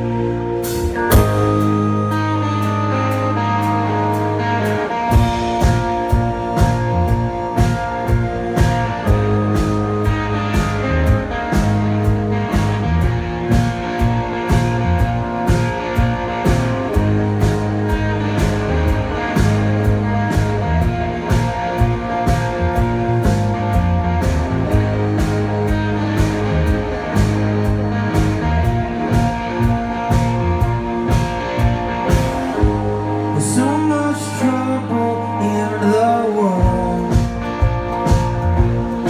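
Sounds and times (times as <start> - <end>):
bass guitar: 0.0 - 39.0
guitars: 0.0 - 39.0
drum kit steady beat: 0.6 - 3.2, 4.6 - 33.2, 36.6 - 39.0.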